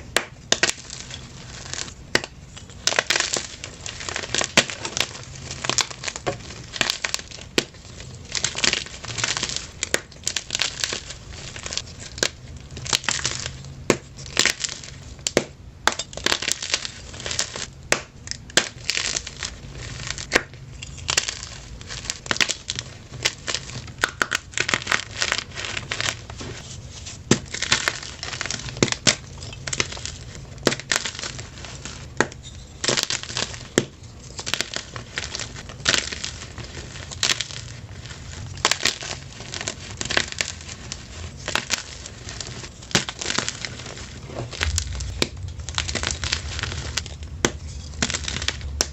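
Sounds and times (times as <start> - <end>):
chalk crunched by hand: 32.8 - 48.9.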